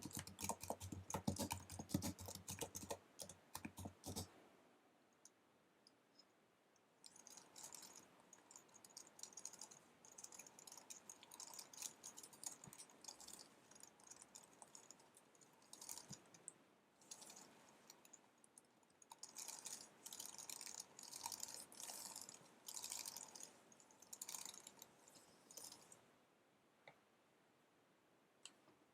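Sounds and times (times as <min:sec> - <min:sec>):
keyboard typing clicks: 0:00.0 - 0:04.3.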